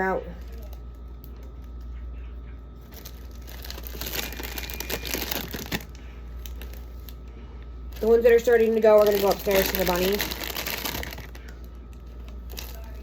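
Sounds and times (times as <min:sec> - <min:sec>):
plastic packaging crinkling: 0:02.8 - 0:07.2, 0:07.9 - 0:13.0.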